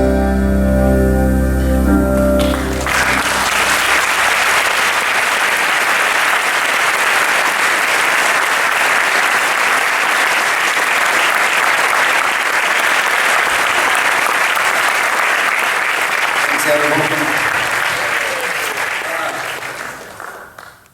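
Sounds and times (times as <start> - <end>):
held music chord: 0.0 - 4.1
audience applause: 2.4 - 20.9.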